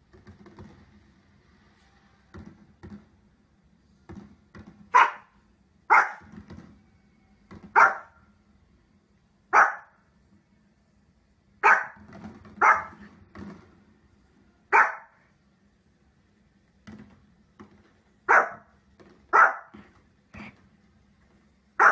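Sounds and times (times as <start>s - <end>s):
small dog barking: 4.9s - 6.3s, 7.7s - 8.2s, 9.5s - 10.0s, 11.6s - 12.0s, 12.6s - 13.0s, 14.7s - 15.2s, 18.3s - 18.7s, 19.3s - 19.8s.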